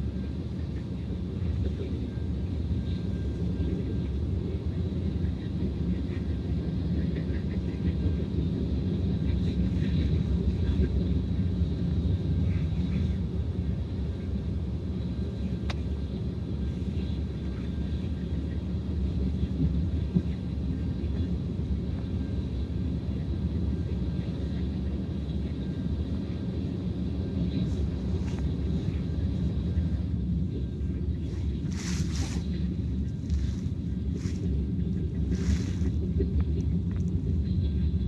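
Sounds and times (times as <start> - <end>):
train rumbling past: 24.9 - 38.0.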